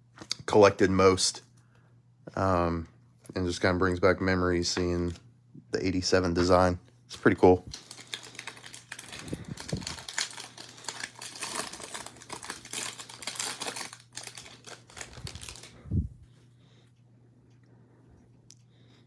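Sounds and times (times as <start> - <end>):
wrapper crinkling: 7.2 - 15.9.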